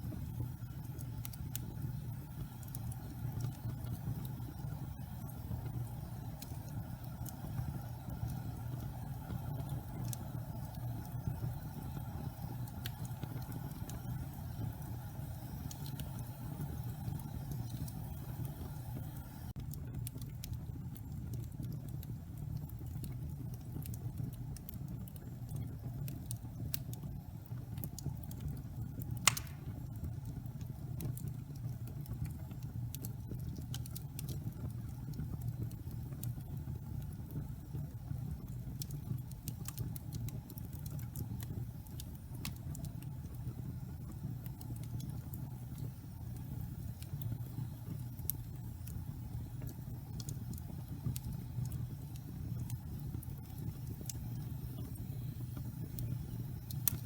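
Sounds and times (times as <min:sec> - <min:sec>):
log fire rumbling and crackling: 0:00.0 - 0:57.0
loud fire pop: 0:29.3 - 0:29.8.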